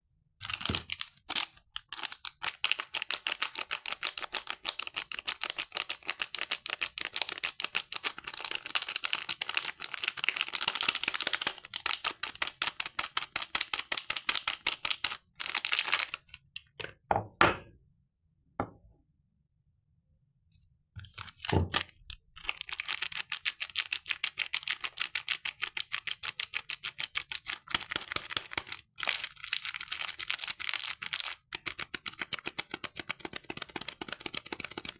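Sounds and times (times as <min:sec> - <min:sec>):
packaging crinkling: 0:00.4 - 0:16.6, 0:21.0 - 0:25.7, 0:27.4 - 0:31.5.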